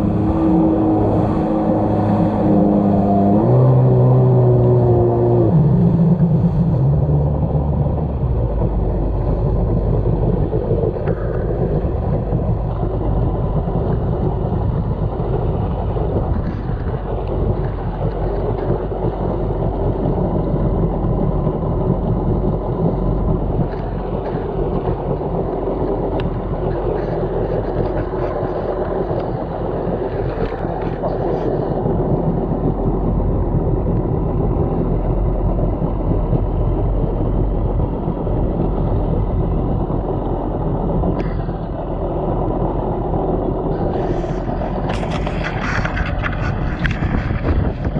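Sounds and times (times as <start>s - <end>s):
water rushing: 0.0s - 47.9s
watercraft engine: 0.0s - 47.9s
wind on microphone: 0.0s - 47.9s.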